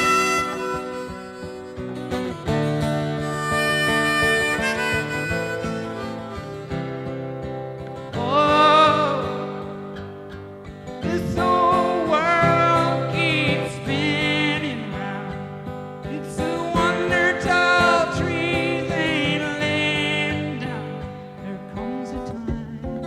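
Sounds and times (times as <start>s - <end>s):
harmonica bending notes: 0.0s - 9.8s
strummed acoustic guitar: 0.0s - 23.0s.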